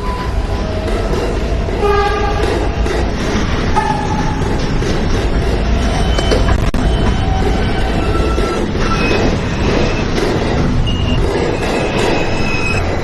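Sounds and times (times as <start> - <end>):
subway train rail rumble: 0.0 - 13.0
high-pitched wheel squeals: 5.9 - 10.2, 10.8 - 12.8.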